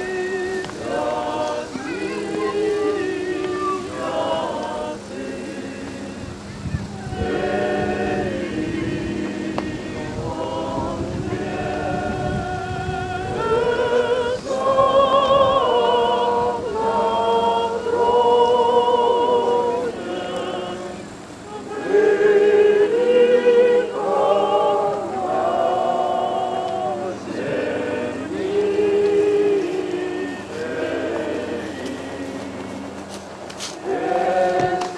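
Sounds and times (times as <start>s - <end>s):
group singing slow song: 0.0s - 34.9s.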